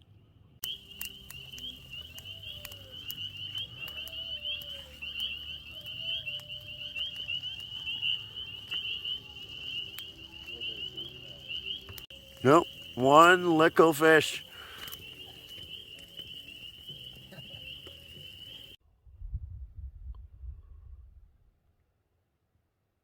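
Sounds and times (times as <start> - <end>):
sharp clicks: 0.6 - 10.1, 11.8 - 18.6
faint low frog calls: 0.6 - 18.8
frogs trilling: 0.6 - 18.8.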